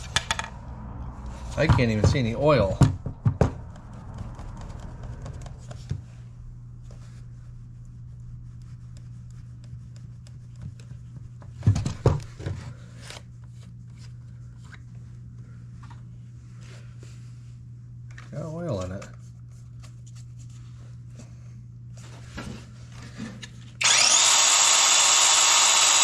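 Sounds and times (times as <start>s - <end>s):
steady low hum: 0.0s - 24.6s
knocks: 2.8s - 6.0s.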